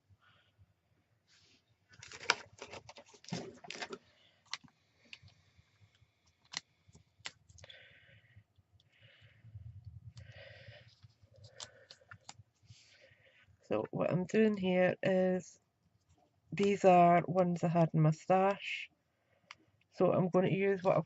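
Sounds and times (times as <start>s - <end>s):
card stock clicking and crinkling: 1.9s - 5.4s, 6.2s - 7.8s, 10.1s - 12.6s
soft rustles: 9.6s - 13.4s.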